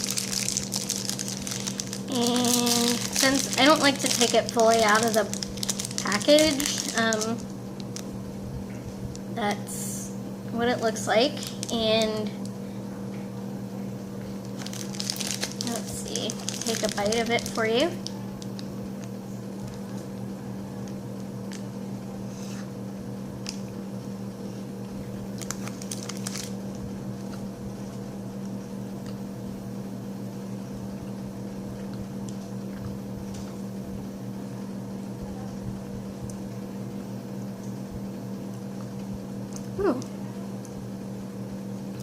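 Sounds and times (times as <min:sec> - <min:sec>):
steady low hum: 0:00.0 - 0:42.0
faint crunches: 0:14.4 - 0:17.6.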